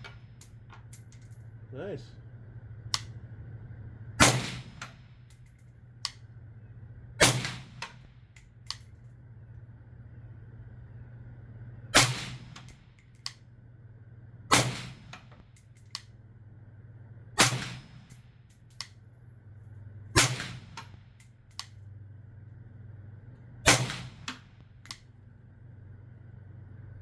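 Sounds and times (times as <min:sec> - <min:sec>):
light mechanical clicks: 0:02.9 - 0:03.2
suppressed rifle shots: 0:04.2 - 0:05.0, 0:07.2 - 0:08.0, 0:12.0 - 0:12.8, 0:14.5 - 0:15.2, 0:17.4 - 0:18.2, 0:20.2 - 0:20.9, 0:23.6 - 0:24.5.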